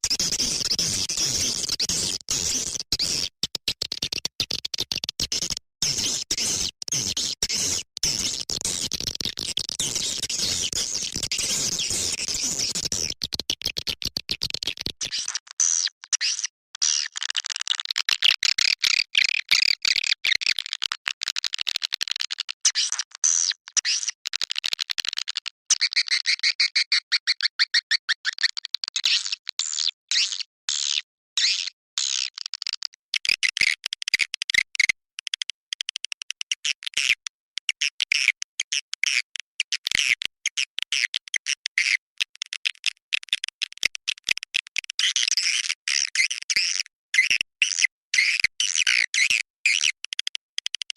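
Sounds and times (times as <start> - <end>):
coarse scratchy noise: 0.0 - 15.5.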